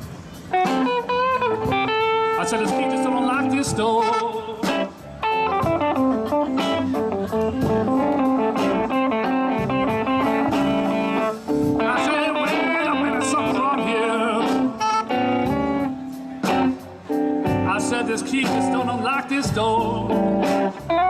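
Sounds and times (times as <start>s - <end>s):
electric guitar lead fills: 0.0s - 21.0s
slow blues band: 0.0s - 21.0s
person singing: 2.3s - 8.8s, 11.8s - 15.6s, 17.6s - 20.8s.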